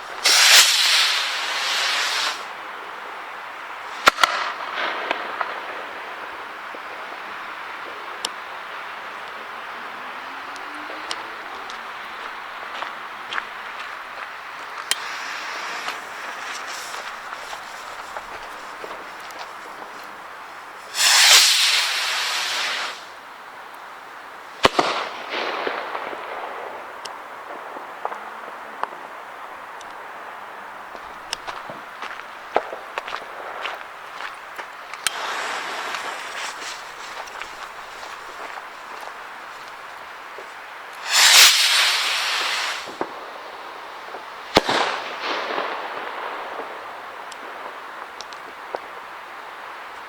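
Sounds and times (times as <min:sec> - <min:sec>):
firework rocket launching hiss: 0:00.0 - 0:02.6, 0:03.4 - 0:12.7, 0:13.9 - 0:23.3, 0:24.4 - 0:28.2, 0:31.0 - 0:48.0
firework crackles: 0:00.0 - 0:50.0
firework bang: 0:00.2 - 0:02.5, 0:04.0 - 0:06.1, 0:20.9 - 0:23.1, 0:24.6 - 0:27.0, 0:41.0 - 0:47.8.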